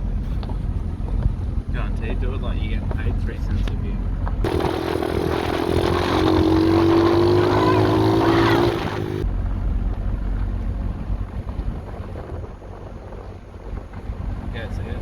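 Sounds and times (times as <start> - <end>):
pit bike engine running hard: 1.0 - 15.0
low hum: 4.2 - 15.0
wind on microphone: 4.4 - 15.0.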